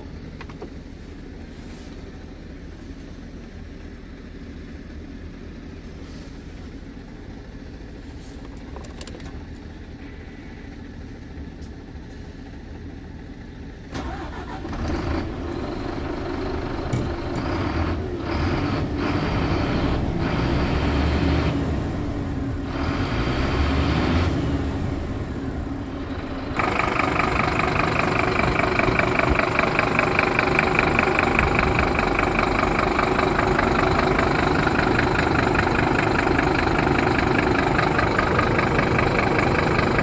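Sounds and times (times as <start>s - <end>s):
truck diesel engine running: 9.4s - 40.0s.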